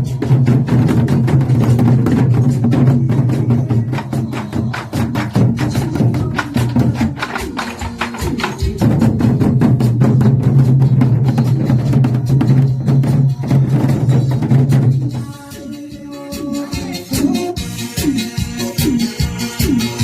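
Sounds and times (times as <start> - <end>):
music backing track: 0.0 - 20.0
rapid drumming: 0.0 - 20.0.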